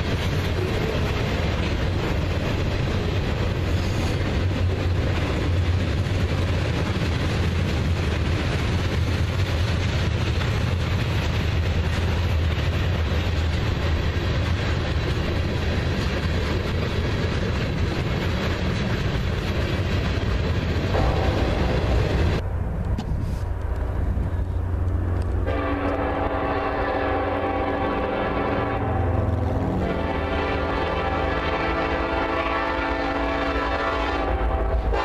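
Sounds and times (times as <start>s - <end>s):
train wheels clickety-clack: 0.0s - 26.2s
freight train rumbling past: 0.0s - 35.0s.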